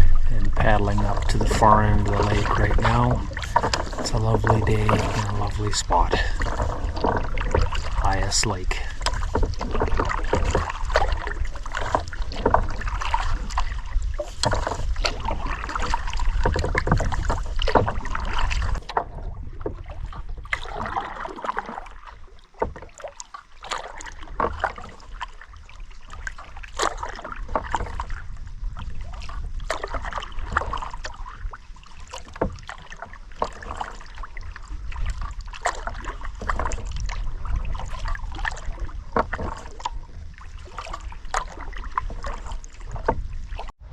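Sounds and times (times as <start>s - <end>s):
wind on microphone: 0.0s - 21.2s
paddle splashing in water: 0.0s - 43.9s.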